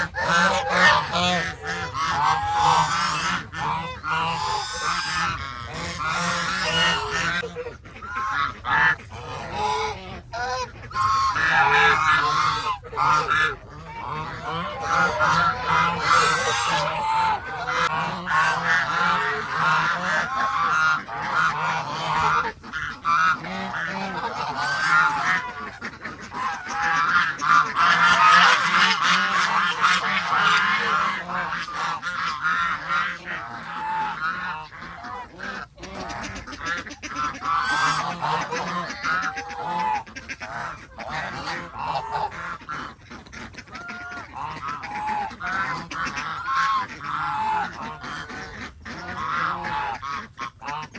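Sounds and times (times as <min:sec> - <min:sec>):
geese honking: 0:00.0 - 0:50.9.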